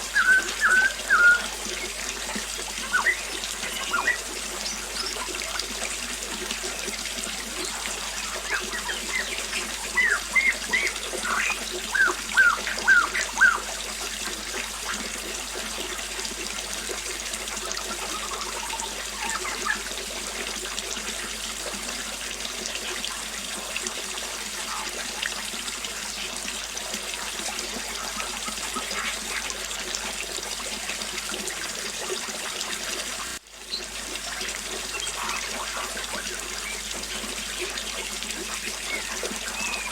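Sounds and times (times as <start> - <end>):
bird whistled calls: 0.0 - 5.4, 7.6 - 13.7, 18.0 - 19.9, 38.8 - 39.9
small waterfall splashing: 0.0 - 39.9.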